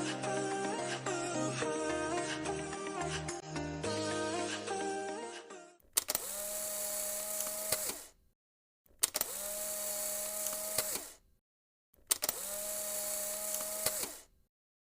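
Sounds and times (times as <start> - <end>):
small motor whirring: 6.0 - 8.2, 9.0 - 11.2, 12.1 - 14.4
motor switch click: 7.2 - 8.1, 9.0 - 11.2, 12.0 - 14.3.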